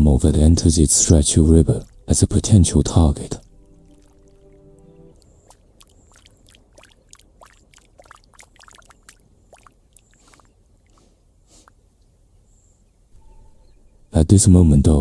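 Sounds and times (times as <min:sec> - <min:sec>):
low steady hum: 0:00.0 - 0:10.2
water splashes and drips: 0:00.6 - 0:11.7.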